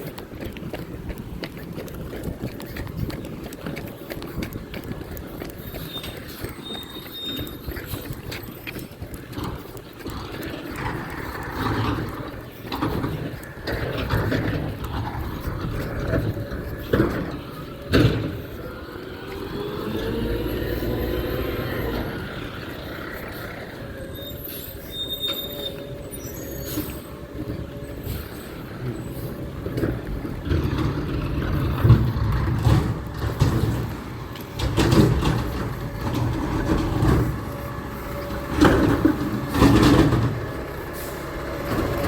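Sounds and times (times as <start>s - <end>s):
low truck rumble: 0.0s - 42.0s
garbage truck clanks and knocks: 10.3s - 22.2s, 26.8s - 42.0s
hydraulic whine with rising tones: 14.2s - 42.0s.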